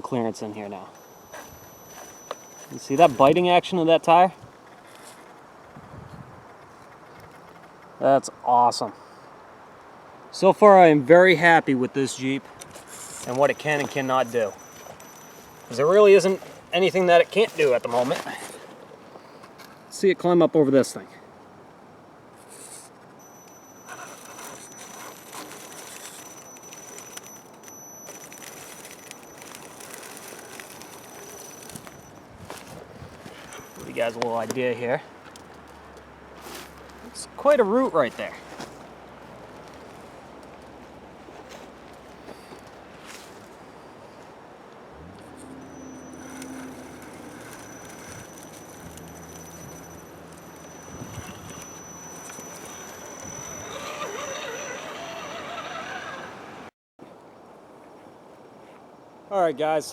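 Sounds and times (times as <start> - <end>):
electric motor whine: 1.0 - 3.4, 12.8 - 18.3, 23.2 - 34.2, 45.0 - 56.7
tyres crunching on rock: 12.4 - 18.9, 23.8 - 34.6.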